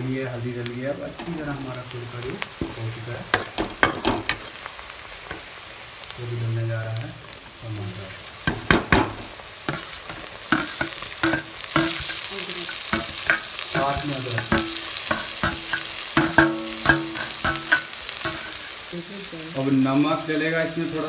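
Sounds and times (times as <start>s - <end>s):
tomatoes sizzling in oil: 0.0s - 21.0s
steel utensil scraping pan: 9.7s - 18.8s.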